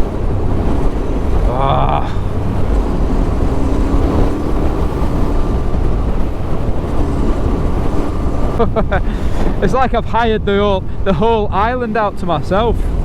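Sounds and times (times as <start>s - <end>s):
motorcycle engine running: 0.0s - 8.7s
wind noise on microphone: 0.0s - 13.0s.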